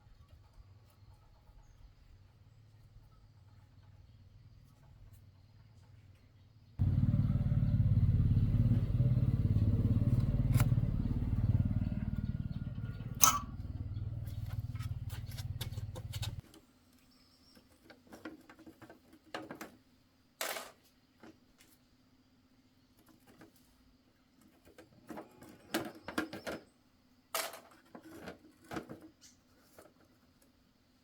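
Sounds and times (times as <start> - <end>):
tractor engine running: 6.8 - 16.4
sharp metallic knocks: 13.0 - 13.7.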